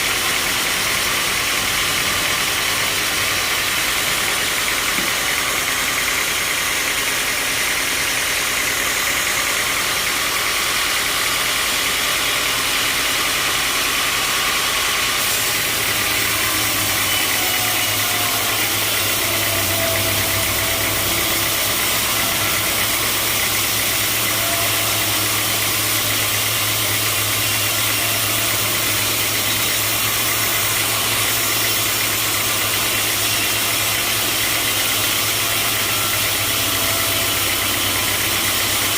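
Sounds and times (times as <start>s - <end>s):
sawmill machinery running: 0.0s - 38.9s.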